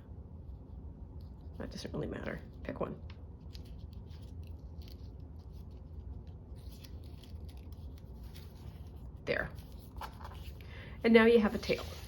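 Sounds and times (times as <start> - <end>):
steady low hum: 0.0 - 12.0
paper rustling and scraping: 3.5 - 12.0.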